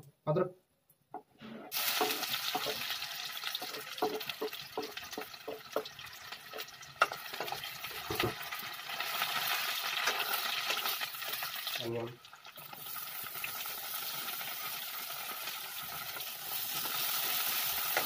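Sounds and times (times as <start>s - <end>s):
metal spatula scraping pan: 1.4s - 5.2s
garlic sizzling in hot oil: 1.7s - 18.0s.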